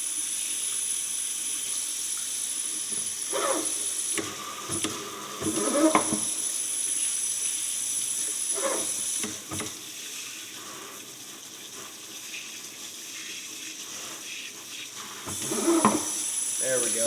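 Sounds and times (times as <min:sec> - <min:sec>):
tap running into sink: 0:04.1 - 0:06.3, 0:08.7 - 0:09.9, 0:14.9 - 0:16.3.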